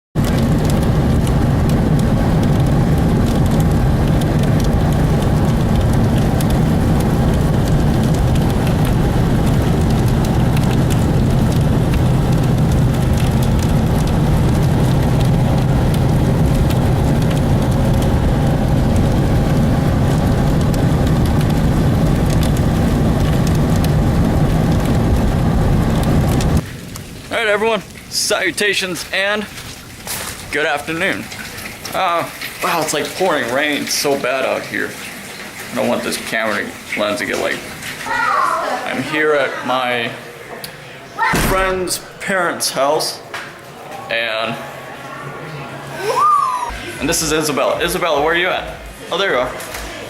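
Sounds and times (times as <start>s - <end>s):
low rumble: 0.2s - 28.0s
heavy rain pouring: 0.2s - 50.0s.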